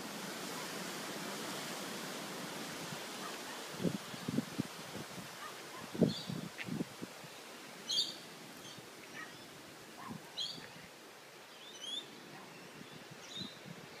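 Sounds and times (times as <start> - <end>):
faint outdoor hiss: 0.0 - 14.0
small birds chirping: 6.0 - 14.0.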